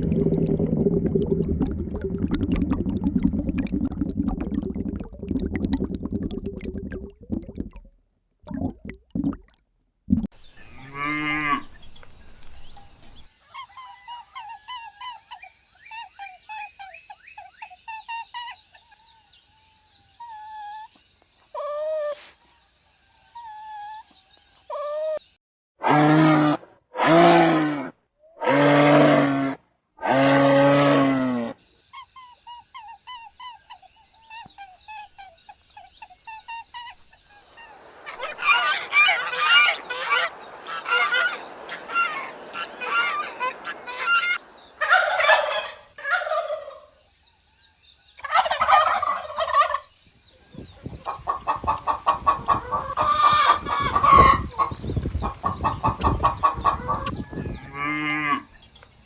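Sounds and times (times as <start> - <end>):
chickens clucking: 37.9 - 46.8, 48.2 - 49.8, 50.6 - 57.7
turkeys gobbling: 38.0 - 46.9, 48.2 - 49.8, 51.0 - 57.3.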